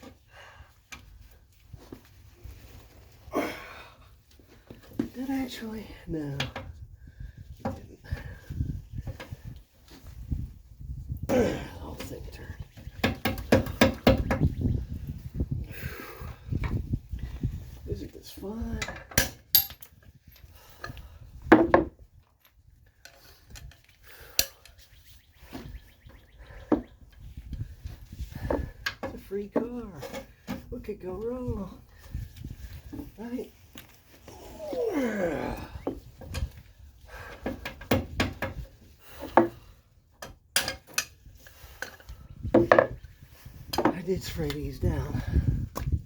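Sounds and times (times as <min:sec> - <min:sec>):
sharp metal knocks: 0:13.0 - 0:14.5
hand tools clicking and scraping: 0:22.3 - 0:25.7, 0:32.8 - 0:42.9
hand tools clanking on metal: 0:40.2 - 0:41.2.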